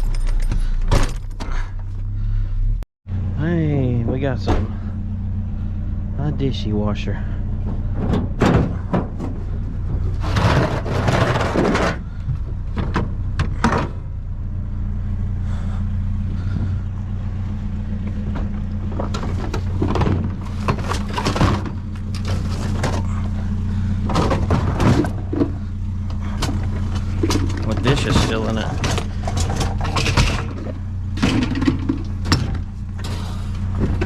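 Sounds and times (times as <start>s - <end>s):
clunking and rattling: 0.0s - 2.5s, 4.0s - 5.0s, 7.2s - 14.5s, 15.4s - 34.0s
vehicle engine idling: 0.0s - 34.0s.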